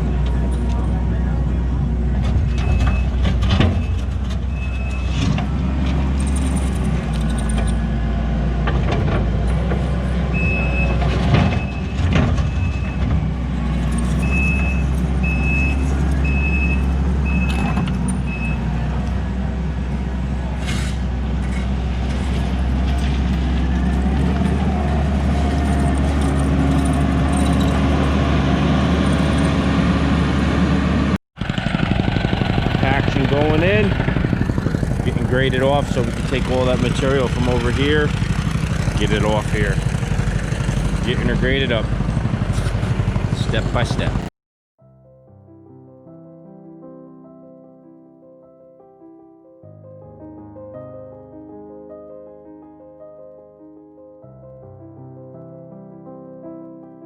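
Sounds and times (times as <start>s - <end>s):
diesel engine running under load: 0.0s - 44.3s
backup alarm beeping: 2.4s - 5.1s, 10.3s - 13.5s, 14.2s - 18.8s.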